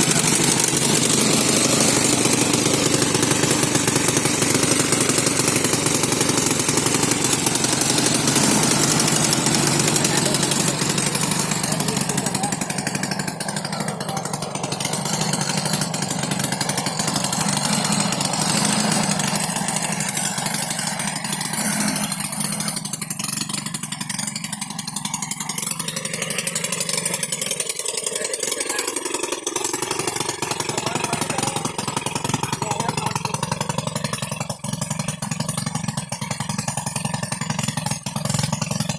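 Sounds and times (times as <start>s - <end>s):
quad bike engine buzzing: 0.0s - 38.9s.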